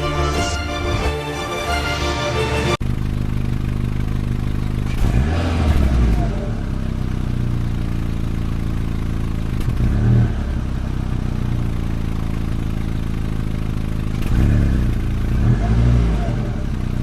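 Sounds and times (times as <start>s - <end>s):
vehicle engine humming: 0.0s - 9.9s.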